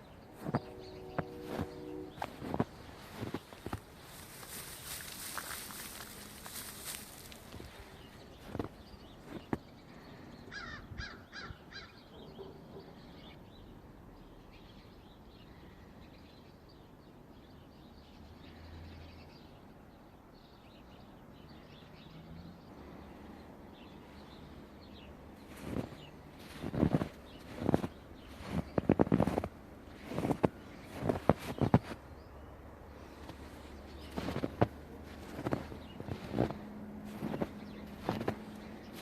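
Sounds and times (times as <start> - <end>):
faint bird calls: 10.0 - 13.4.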